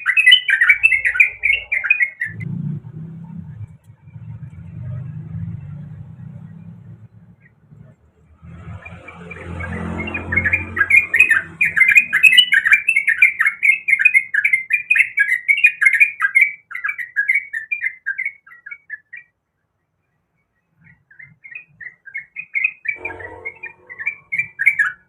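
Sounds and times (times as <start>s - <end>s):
bulbul chattering song: 0.0s - 19.3s, 20.8s - 25.0s
low rumble: 0.9s - 11.7s.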